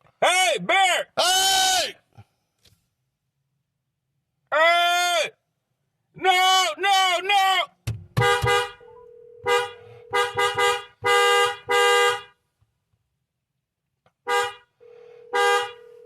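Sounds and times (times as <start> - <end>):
car horn honking: 8.2 - 12.4, 14.2 - 16.0.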